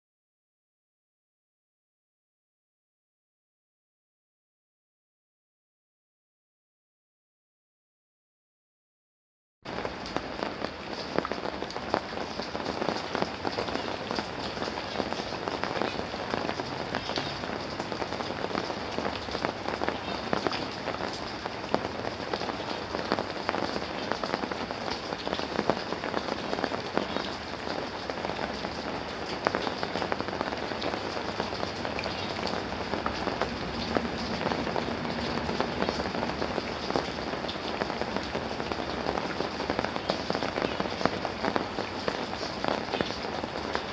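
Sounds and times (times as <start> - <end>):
rain falling: 9.7 - 43.9.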